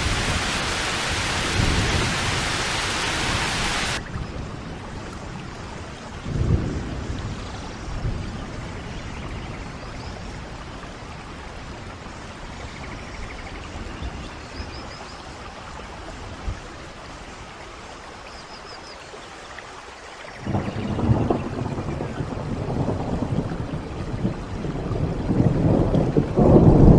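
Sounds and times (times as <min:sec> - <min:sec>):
thunder rumbling: 0:00.0 - 0:04.0, 0:20.5 - 0:26.9
steady rain: 0:00.0 - 0:26.9.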